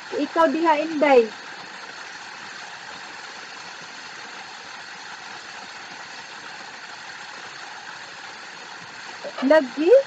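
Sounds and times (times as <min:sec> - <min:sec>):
waterfall rushing: 0:08.0 - 0:10.0.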